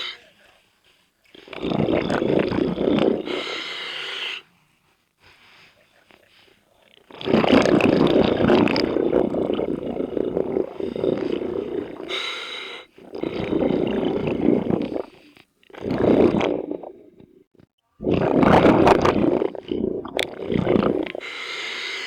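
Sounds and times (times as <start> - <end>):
diver exhaling bubbles: 1.3 - 3.8, 7.1 - 22.0.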